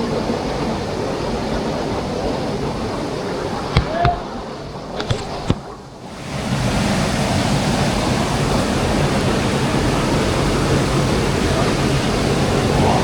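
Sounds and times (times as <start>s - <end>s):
stream water rushing: 0.0s - 13.0s
sharp knocks: 3.7s - 5.7s.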